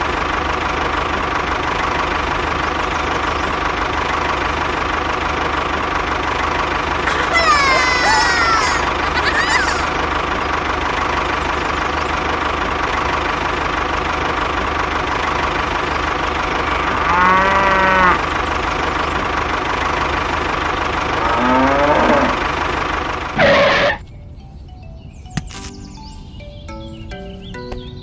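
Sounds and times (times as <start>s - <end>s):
tractor engine running: 0.0s - 28.0s
cow mooing: 16.6s - 18.2s, 21.2s - 22.4s.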